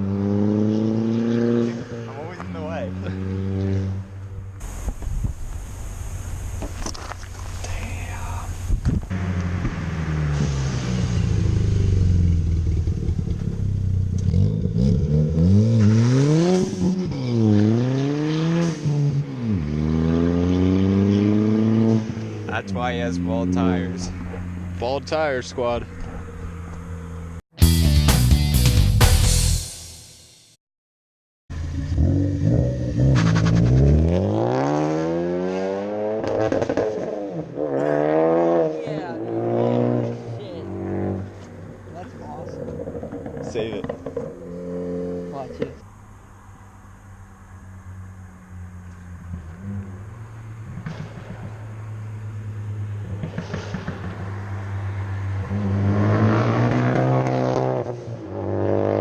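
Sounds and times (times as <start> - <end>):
car engine idling and revving: 0.0 - 27.4, 31.5 - 59.0
exhaust pops: 3.6 - 15.0, 41.1 - 46.0, 48.7 - 54.8.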